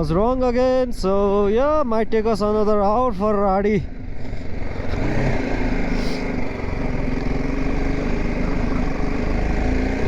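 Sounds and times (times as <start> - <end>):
motorcycle engine running: 3.8 - 10.0.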